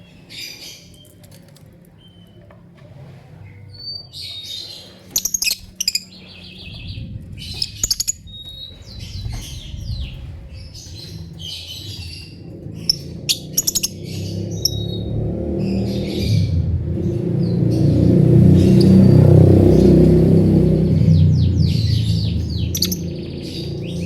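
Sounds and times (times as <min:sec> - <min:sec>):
lovebirds chirping: 0:00.0 - 0:24.0
low rumble: 0:05.5 - 0:24.0.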